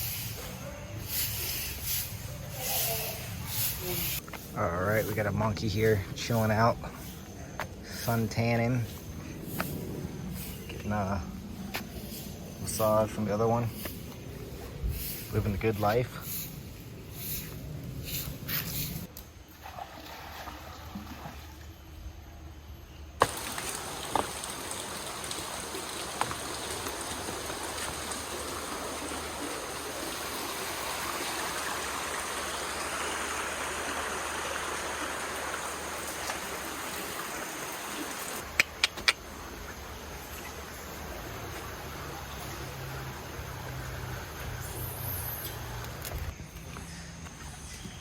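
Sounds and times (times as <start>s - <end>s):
flowing water: 23.2s - 44.4s.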